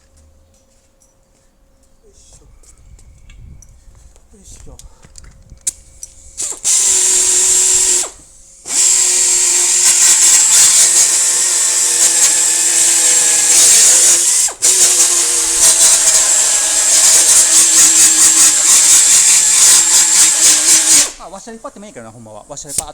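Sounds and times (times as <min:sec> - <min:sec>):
power tool motor humming: 0:06.2 - 0:21.9.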